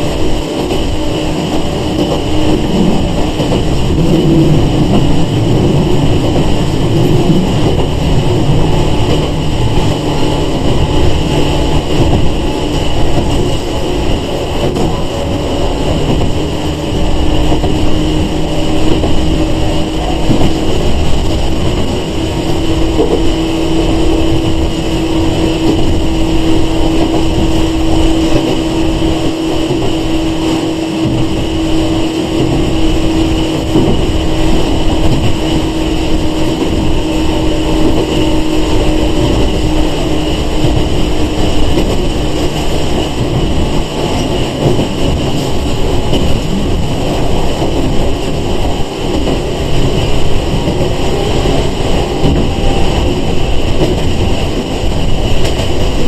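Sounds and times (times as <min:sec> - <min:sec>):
train motor whine: 0:00.0 - 0:56.0
train wheels rumbling: 0:00.0 - 0:56.0.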